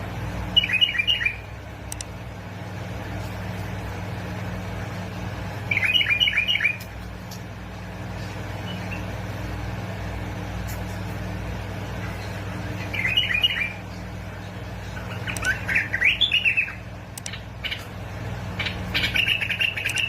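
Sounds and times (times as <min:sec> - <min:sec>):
bird chirping: 0:00.5 - 0:01.5, 0:05.7 - 0:06.9, 0:08.2 - 0:09.2, 0:12.0 - 0:14.0, 0:14.8 - 0:17.9, 0:18.6 - 0:20.0.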